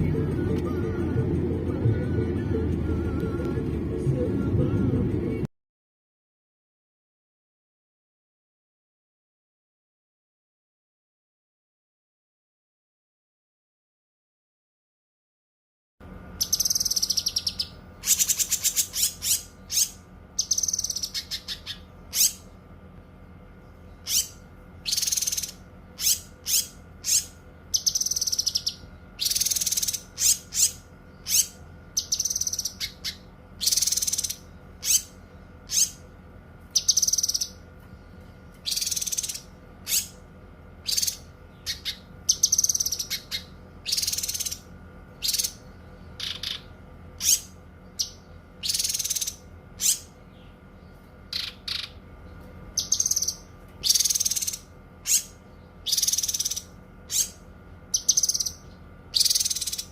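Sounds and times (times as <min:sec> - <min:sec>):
faint steady hum: 0:00.0 - 0:05.5, 0:16.0 - 0:59.9
bird singing trills: 0:16.4 - 0:22.6, 0:23.6 - 0:40.2, 0:40.8 - 0:59.9.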